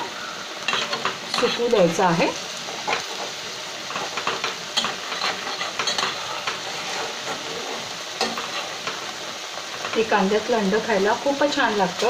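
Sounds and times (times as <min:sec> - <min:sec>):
food sizzling in a pan: 0:00.0 - 0:12.0
metal spatula scraping a pan: 0:00.6 - 0:02.0, 0:03.9 - 0:09.1.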